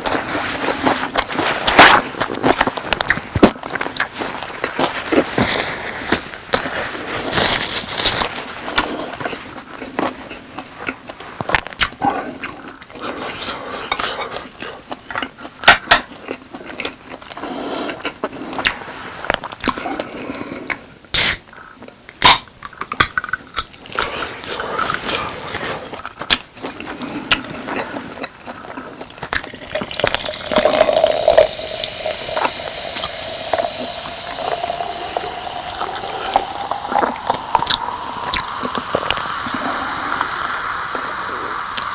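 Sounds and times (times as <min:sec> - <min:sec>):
drink pouring into cup: 0:29.4 - 0:41.9.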